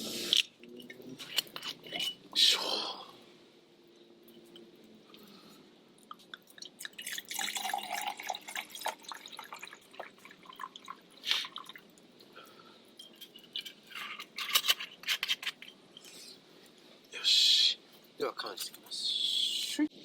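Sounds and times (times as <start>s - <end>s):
liquid pouring: 6.3s - 12.0s.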